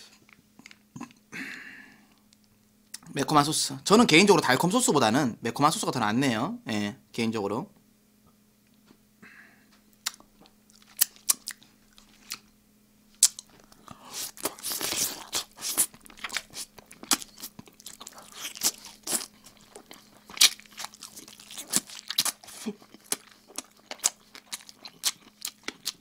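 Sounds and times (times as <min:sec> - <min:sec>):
man chewing with lip-smacking: 0:00.1 - 0:01.2, 0:09.7 - 0:26.0.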